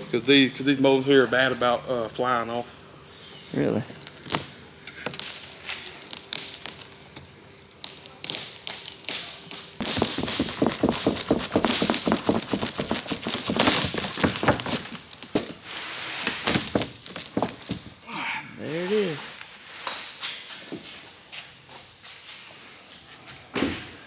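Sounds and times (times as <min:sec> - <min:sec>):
tapping and scraping on windshield: 0:07.8 - 0:18.0.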